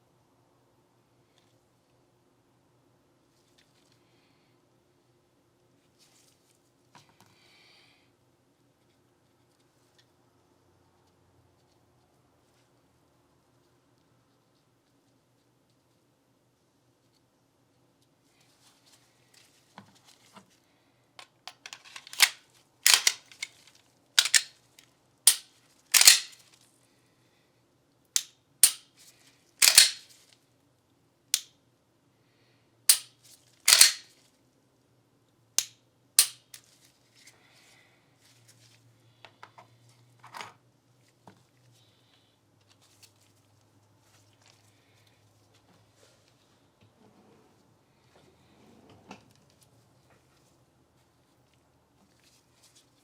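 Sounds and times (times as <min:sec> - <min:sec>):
pistol clicks and snaps: 0:21.5 - 0:23.5, 0:24.2 - 0:24.5, 0:25.3 - 0:26.4, 0:28.2 - 0:28.8, 0:29.6 - 0:30.0, 0:32.9 - 0:33.1, 0:33.7 - 0:34.0, 0:35.6 - 0:36.6.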